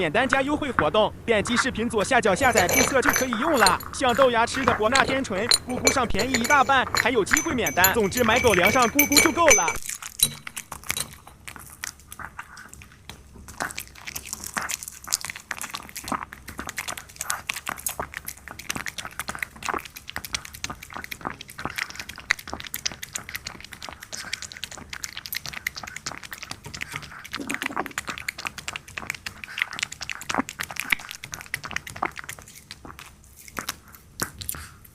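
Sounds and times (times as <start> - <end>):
puppy chewing food: 9.8 - 34.9.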